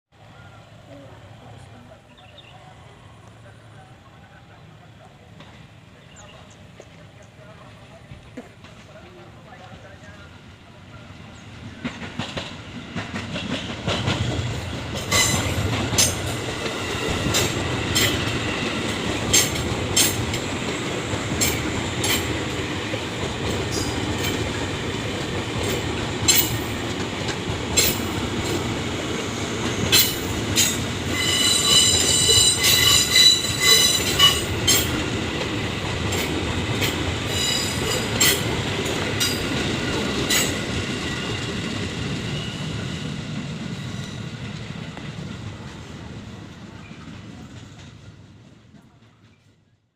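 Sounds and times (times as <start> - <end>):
train wheels rumbling on rail: 0.3 - 49.9
rail joint clicks and clatter: 5.0 - 10.3, 11.4 - 42.9, 43.8 - 49.6
metallic wheel squeal: 30.0 - 34.8.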